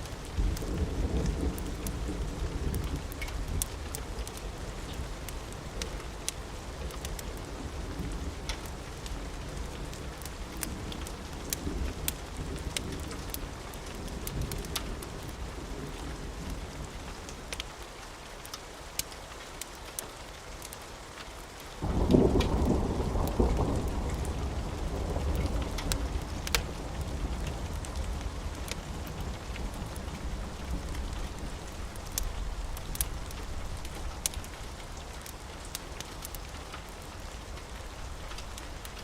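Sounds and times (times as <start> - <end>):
steady rain: 0.0 - 39.0
thunder rumbling: 0.1 - 6.0, 21.8 - 38.8.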